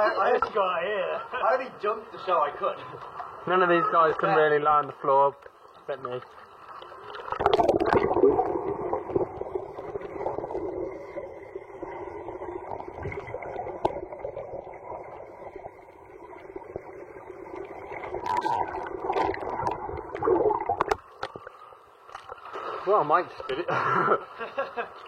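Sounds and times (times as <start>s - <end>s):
underwater water bubbling: 5.3s - 25.0s.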